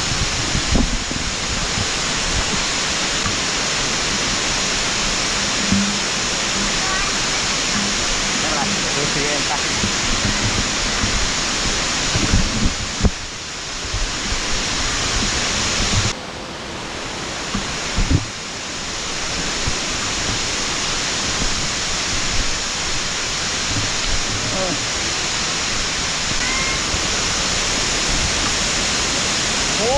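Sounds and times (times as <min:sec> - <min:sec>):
waterfall rushing: 0:00.0 - 0:29.9
thumps on microphone: 0:09.8 - 0:13.2.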